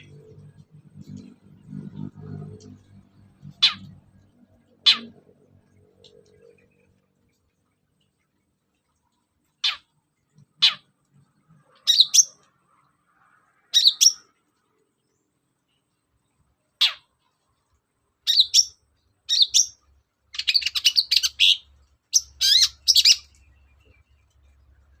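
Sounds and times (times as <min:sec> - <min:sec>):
bird scratchy chattering song: 0:03.4 - 0:04.0, 0:04.8 - 0:05.1, 0:18.3 - 0:24.0.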